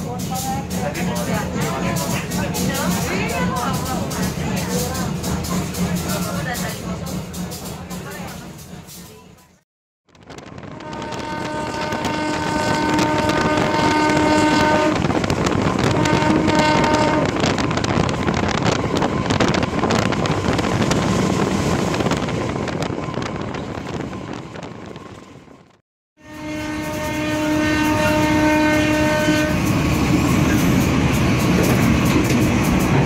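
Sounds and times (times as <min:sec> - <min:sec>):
train rumble: 0:00.0 - 0:33.0
train horn blasts: 0:10.7 - 0:17.6, 0:26.2 - 0:29.7.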